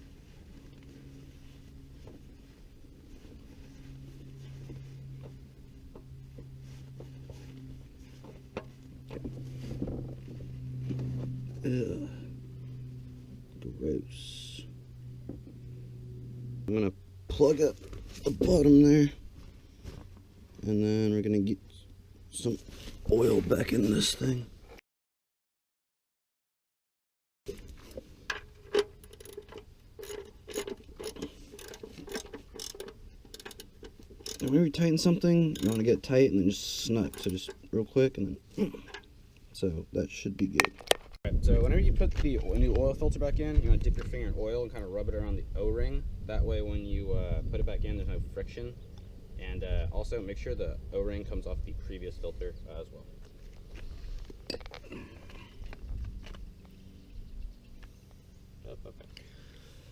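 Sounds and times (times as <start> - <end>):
steady low hum: 0.0 - 24.8, 27.5 - 59.9
hand tools clicking and knocking: 28.3 - 34.6, 35.4 - 35.9, 37.0 - 37.6.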